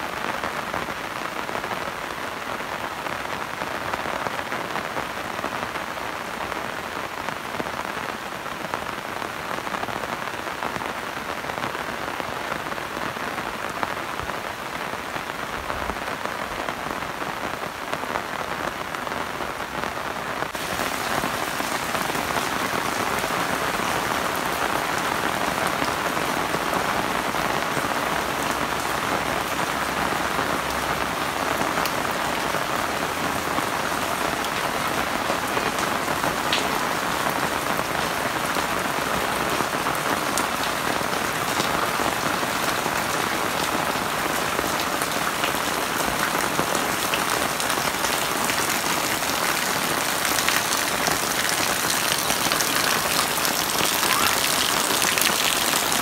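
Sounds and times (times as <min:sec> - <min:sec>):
rain on concrete and leaves: 0:00.0 - 0:56.0.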